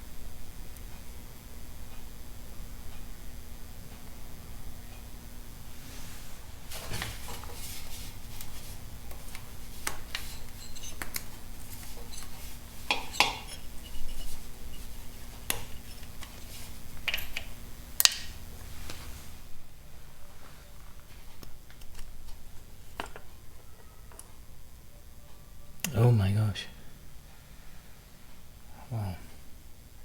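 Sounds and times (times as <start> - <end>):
metal tools clinking: 10.1 - 14.9.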